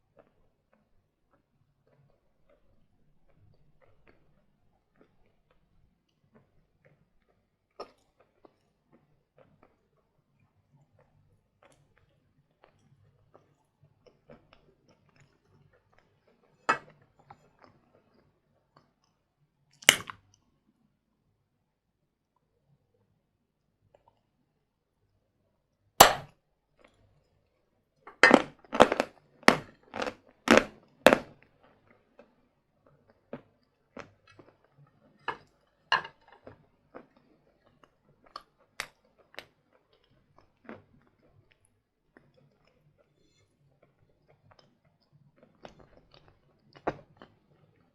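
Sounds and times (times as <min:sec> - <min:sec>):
chewing and crunching chalk: 0:00.0 - 0:19.2, 0:28.1 - 0:47.9
sharp snaps of bites: 0:19.8 - 0:20.3.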